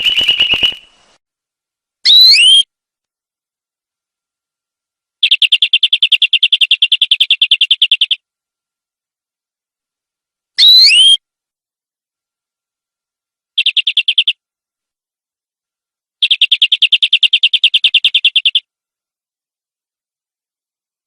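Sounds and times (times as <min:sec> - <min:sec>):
canary singing: 0:00.0 - 0:01.0, 0:02.0 - 0:02.7, 0:05.2 - 0:08.2, 0:10.6 - 0:11.2, 0:13.6 - 0:14.4, 0:16.2 - 0:18.7.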